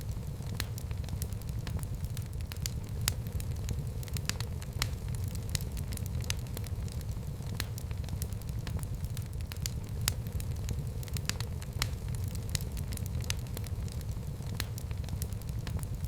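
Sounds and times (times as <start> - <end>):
fire popping: 0.0 - 16.0
fireplace fire crackling: 0.0 - 16.0
low fire rumble: 0.0 - 16.0.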